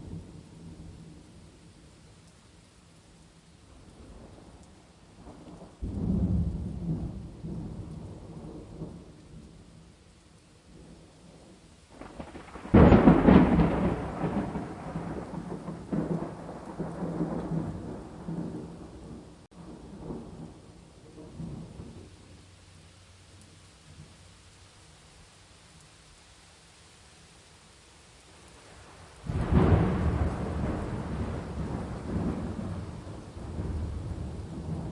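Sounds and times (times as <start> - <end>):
rain hiss: 0.0 - 34.9
thunder rumbling: 5.2 - 9.6, 10.7 - 22.2, 28.5 - 34.9
thunder clap: 12.0 - 19.2, 29.3 - 34.9.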